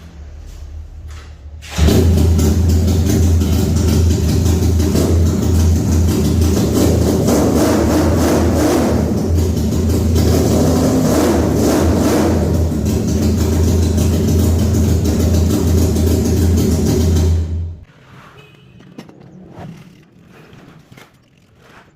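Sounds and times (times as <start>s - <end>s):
engine running with low hum: 0.0s - 21.9s
engine revving: 1.6s - 18.4s.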